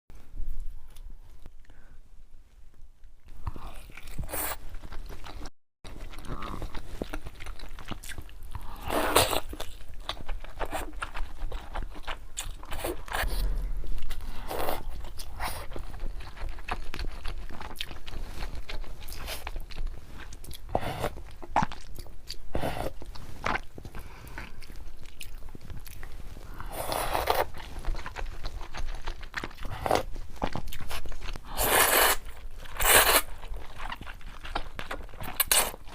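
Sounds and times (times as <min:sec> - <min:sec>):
chewing and crunching: 0:03.3 - 0:35.9
slurping noodles: 0:31.4 - 0:32.2, 0:32.8 - 0:33.3.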